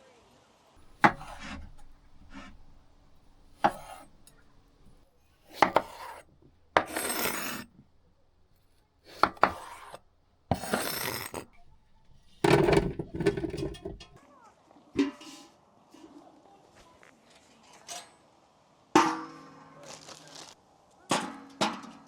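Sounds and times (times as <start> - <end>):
scraping and knocking on hard surface: 0.8 - 14.2.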